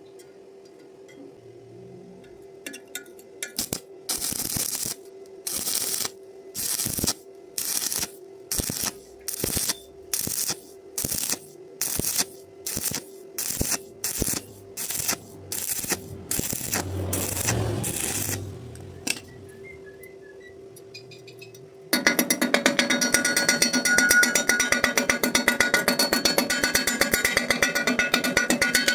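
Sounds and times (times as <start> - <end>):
welding arc crackling: 3.4 - 19.6.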